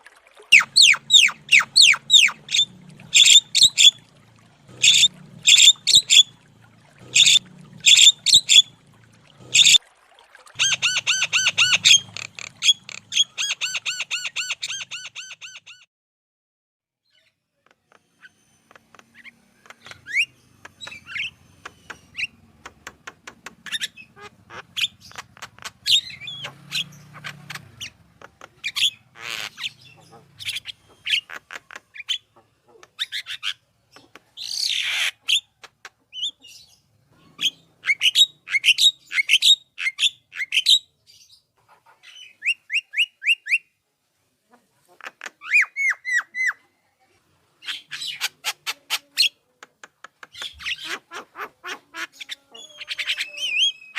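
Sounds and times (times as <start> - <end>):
bird harsh squawk: 0.5 - 4.0, 4.8 - 6.3, 7.1 - 8.7, 9.5 - 9.8, 10.6 - 15.9, 28.6 - 33.6
bird chirps whistles and clicks: 17.9 - 22.3, 49.8 - 50.8.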